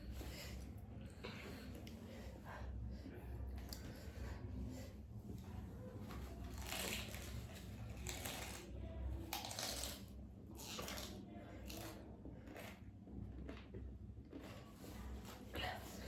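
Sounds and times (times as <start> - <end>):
slurping and chewing noodles: 9.3 - 15.5.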